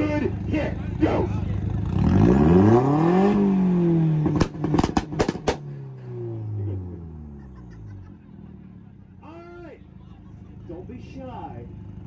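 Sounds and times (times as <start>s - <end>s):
car engine revving: 0.0s - 9.2s
exhaust pops and backfires: 1.7s - 6.7s.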